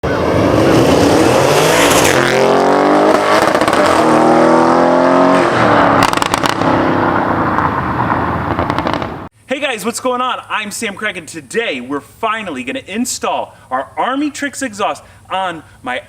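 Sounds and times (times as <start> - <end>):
car engine accelerating hard: 0.0 - 9.2
exhaust pops and crackles: 6.0 - 6.8, 7.5 - 9.3.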